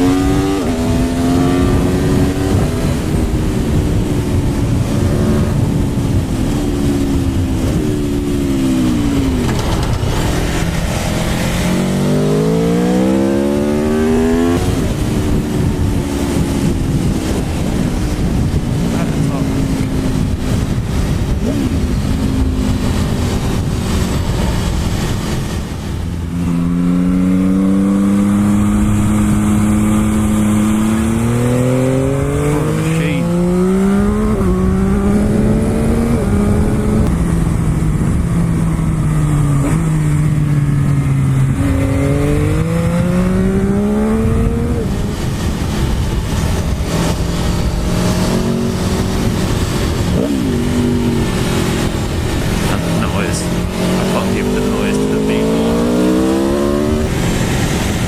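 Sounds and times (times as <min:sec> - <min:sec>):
motorcycle engine accelerating: 0:00.0 - 0:58.0
wind rushing over microphone: 0:00.0 - 0:58.0.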